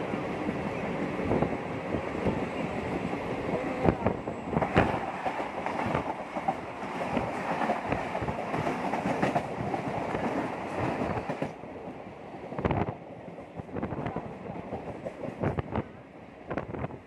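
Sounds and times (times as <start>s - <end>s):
passing train wheels clattering: 2.1s - 11.6s.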